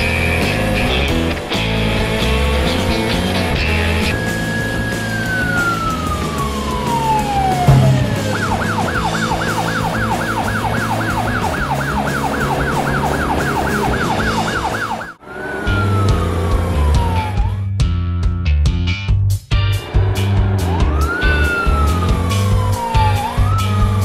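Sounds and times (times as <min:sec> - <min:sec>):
background music: 0:03.1 - 0:13.0
police siren: 0:04.2 - 0:17.6, 0:20.7 - 0:24.0
low thud: 0:07.6 - 0:10.0.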